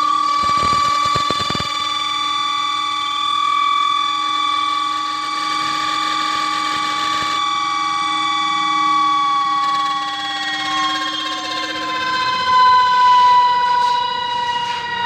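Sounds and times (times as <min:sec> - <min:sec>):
spin dryer whining: 0:00.0 - 0:13.6.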